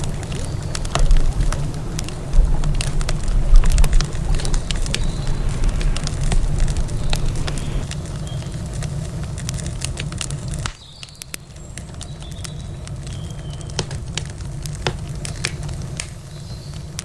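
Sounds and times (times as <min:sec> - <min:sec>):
campfire popping and snapping: 0:00.0 - 0:17.0
low rumble of fire: 0:00.0 - 0:17.0.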